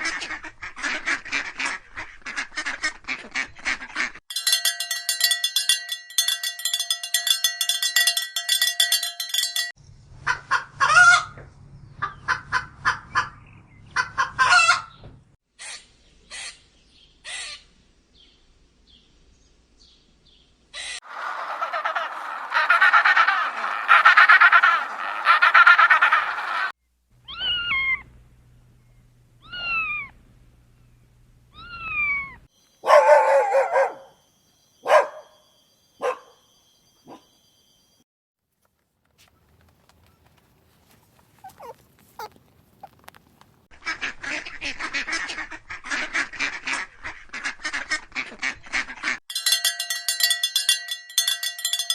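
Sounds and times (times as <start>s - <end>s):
domestic fowl calling: 10.2s - 11.4s, 12.0s - 15.0s, 20.8s - 26.7s, 41.3s - 43.0s.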